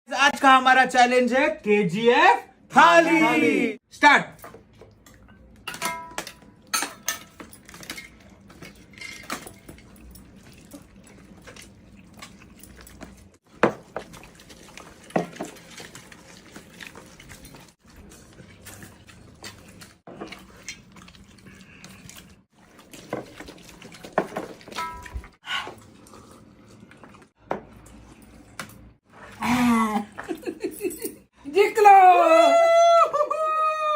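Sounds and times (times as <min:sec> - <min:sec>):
utensils clinking on plates: 0:05.1 - 0:11.0, 0:24.2 - 0:25.3.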